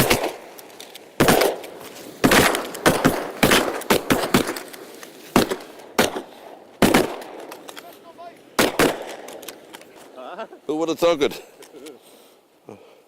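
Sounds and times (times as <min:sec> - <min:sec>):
shotgun shots with echo: 0:00.0 - 0:00.4, 0:01.2 - 0:04.6, 0:05.4 - 0:07.5, 0:08.6 - 0:09.4.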